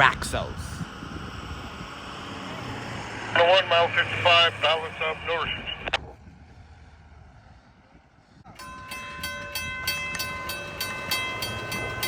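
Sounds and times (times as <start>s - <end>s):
level crossing warning bell: 8.5s - 12.0s.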